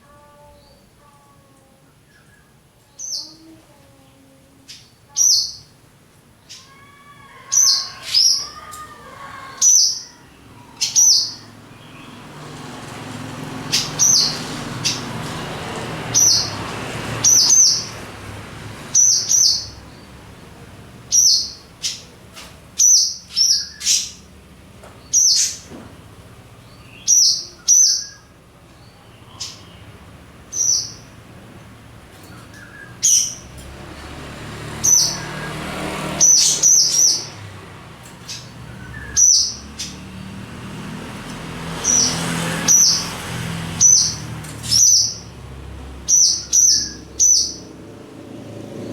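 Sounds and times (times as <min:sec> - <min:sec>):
swallows chirping: 0:06.4 - 0:15.3, 0:16.0 - 0:18.1, 0:18.8 - 0:20.2, 0:21.0 - 0:22.1, 0:22.8 - 0:24.4, 0:25.0 - 0:25.7, 0:26.6 - 0:37.5, 0:38.2 - 0:40.9, 0:41.6 - 0:45.4, 0:46.0 - 0:47.8.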